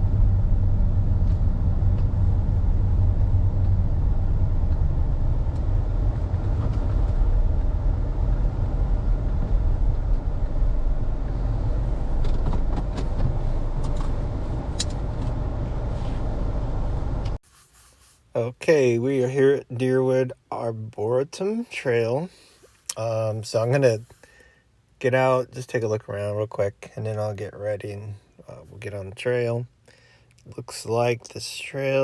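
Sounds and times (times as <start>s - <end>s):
car engine and tyre rumble: 0.0s - 17.4s.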